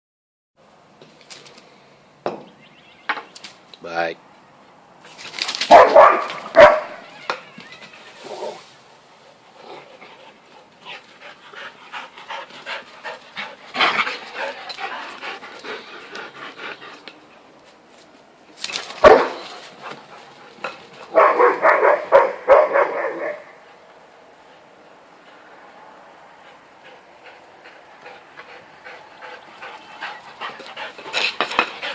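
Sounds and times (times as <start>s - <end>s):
dog panting: 9.1s - 17.6s, 26.3s - 31.9s.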